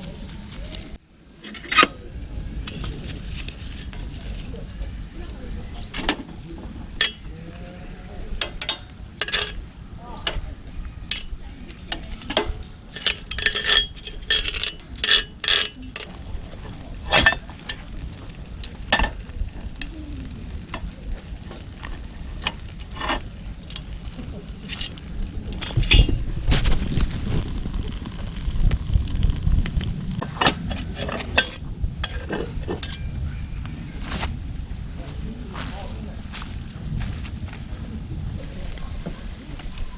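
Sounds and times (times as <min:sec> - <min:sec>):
food sizzling: 0:04.0 - 0:32.9
metal utensils clinking on skillets: 0:07.0 - 0:07.3, 0:08.4 - 0:09.6, 0:11.1 - 0:16.2.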